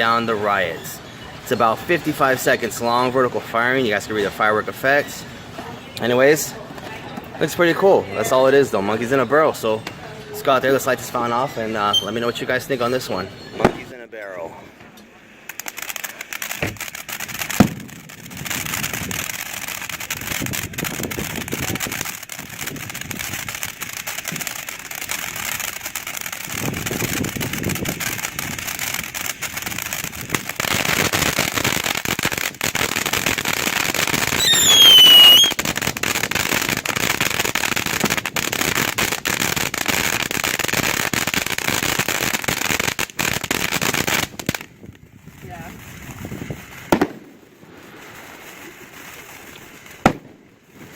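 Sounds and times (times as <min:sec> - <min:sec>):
falling whistle: 0:11.9 - 0:12.2, 0:34.4 - 0:35.6
firework hissing crackle: 0:15.0 - 0:50.9.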